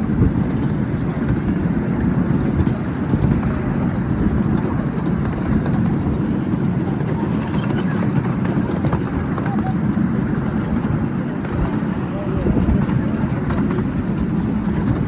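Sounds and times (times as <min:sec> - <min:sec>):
miniature train rumbling on track: 0:00.0 - 0:15.0.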